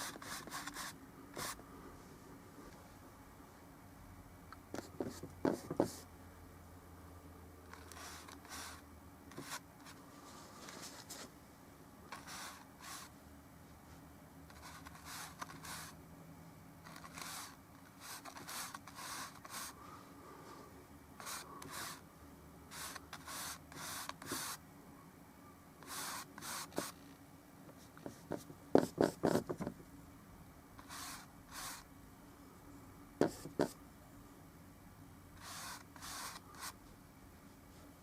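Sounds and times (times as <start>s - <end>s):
brush scrubbing on canvas: 35.4s - 36.8s.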